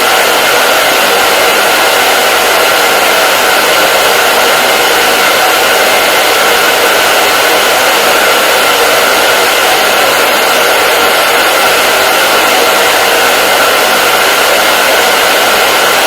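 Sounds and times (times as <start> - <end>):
hair dryer running: 0.0 - 16.0.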